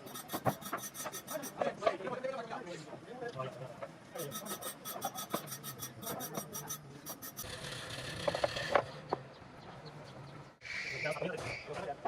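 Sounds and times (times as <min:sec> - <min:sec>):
wood scraped by hand: 0:00.0 - 0:01.6.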